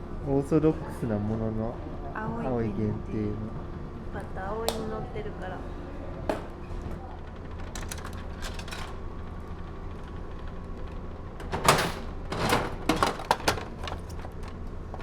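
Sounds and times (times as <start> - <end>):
low machinery hum: 0.0 - 15.0.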